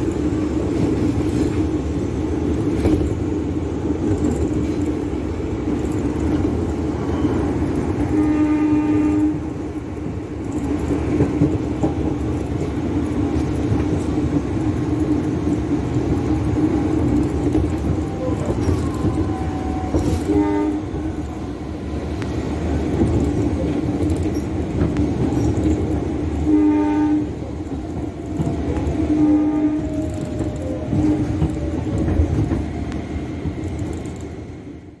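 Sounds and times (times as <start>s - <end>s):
train wheels rumbling on rail: 0.0s - 35.0s
train horn blasts: 8.0s - 9.5s, 19.2s - 21.1s, 26.4s - 27.4s, 29.0s - 30.1s, 30.9s - 31.4s.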